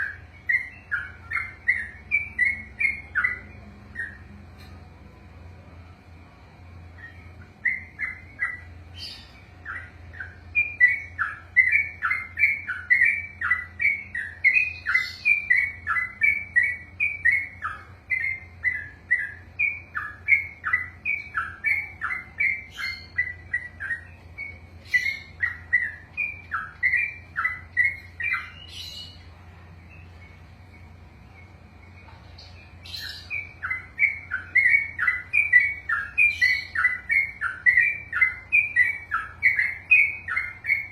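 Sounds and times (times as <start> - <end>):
bird singing rolling song: 0.0 - 40.9.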